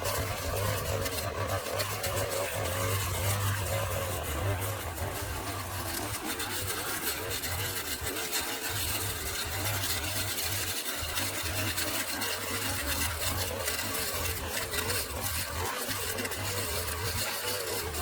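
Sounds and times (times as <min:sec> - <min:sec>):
small engine humming: 0:00.0 - 0:18.0.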